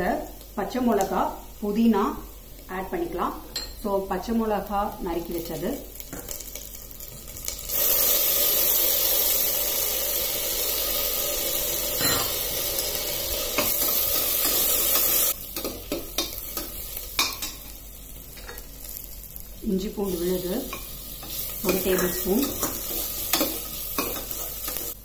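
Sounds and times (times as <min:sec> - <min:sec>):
onions sizzling in hot oil: 0:00.0 - 0:25.0
steel spoon scraping a pan: 0:20.1 - 0:25.0.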